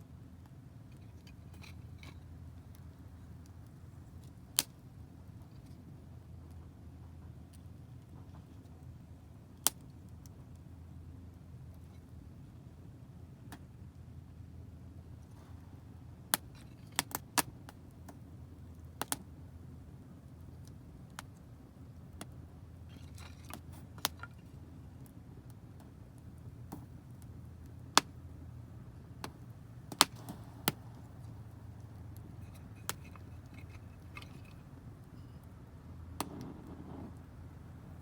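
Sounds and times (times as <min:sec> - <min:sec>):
low steady rumble: 0:00.0 - 0:38.0
wood fire crackling and popping: 0:20.3 - 0:35.0, 0:36.0 - 0:37.6.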